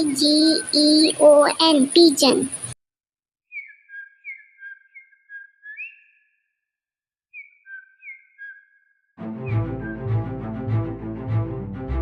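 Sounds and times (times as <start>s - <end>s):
bird whistled notes: 3.5s - 6.4s, 7.3s - 10.1s.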